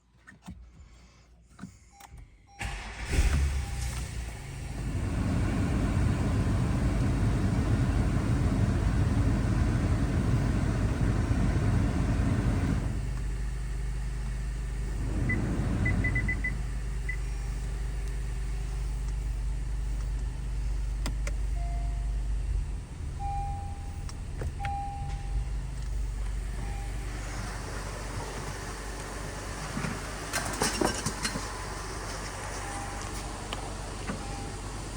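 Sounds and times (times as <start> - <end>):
car engine cranking and idling: 0.2 - 34.9.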